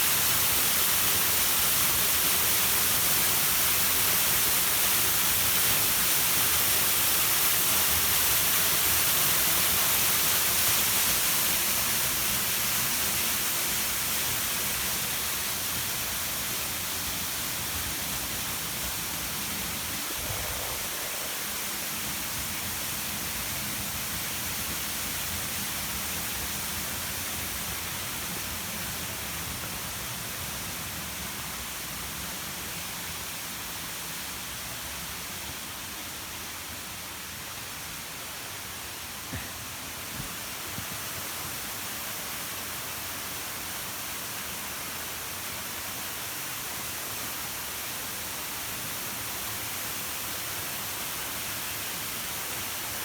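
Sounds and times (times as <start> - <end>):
waterfall rushing: 0.0 - 34.5.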